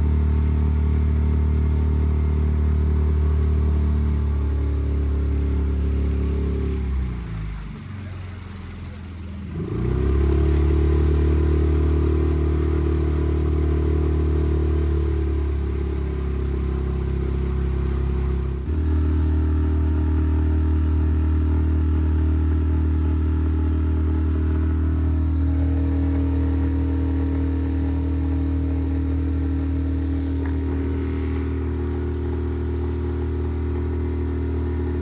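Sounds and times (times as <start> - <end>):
outboard engine running: 11.7 - 35.0.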